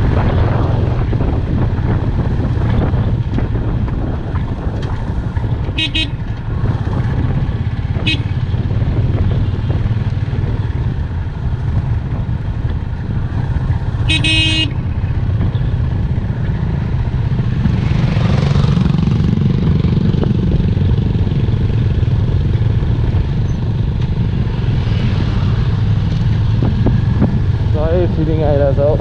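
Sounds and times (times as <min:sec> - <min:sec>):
motorcycle engine rumble: 0:00.0 - 0:29.0
vehicle horn toot: 0:05.8 - 0:06.2, 0:08.0 - 0:08.4, 0:14.1 - 0:14.8.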